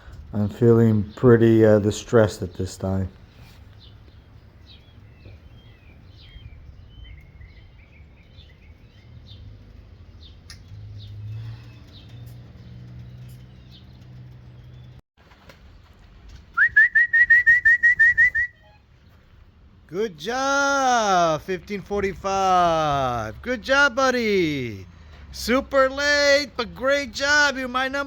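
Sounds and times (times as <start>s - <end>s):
songbird chirps: 0.3s - 28.0s
short rising whistles: 16.5s - 18.8s.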